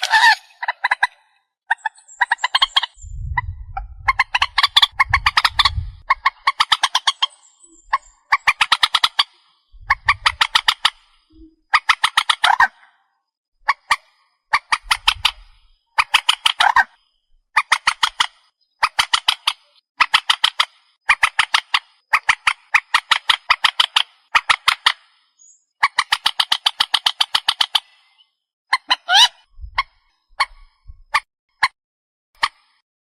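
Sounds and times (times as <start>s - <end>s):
bird harsh repeated notes: 0.0s - 12.8s.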